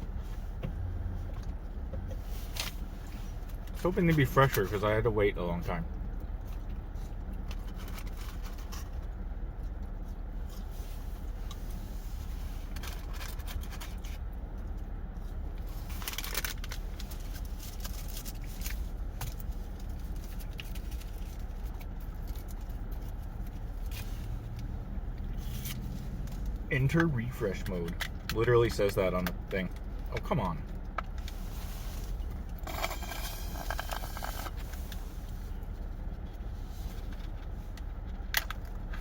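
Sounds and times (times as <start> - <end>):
paper packaging crinkling: 15.9 - 18.9.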